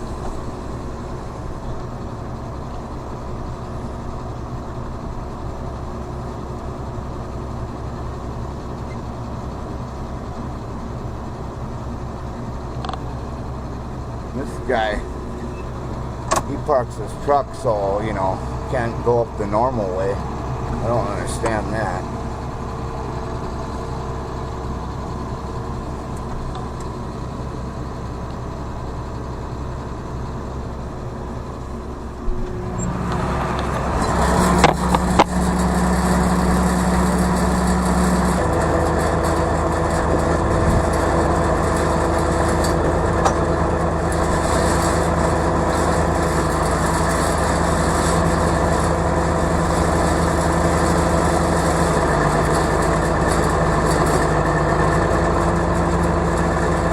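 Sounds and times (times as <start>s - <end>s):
vehicle engine revving: 32.3s - 53.9s.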